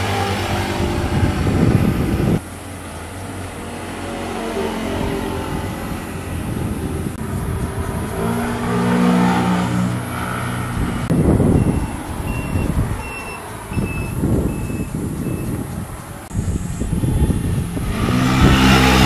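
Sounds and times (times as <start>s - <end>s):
motorcycle engines passing: 0.0s - 19.0s
short high beeps: 11.5s - 15.5s.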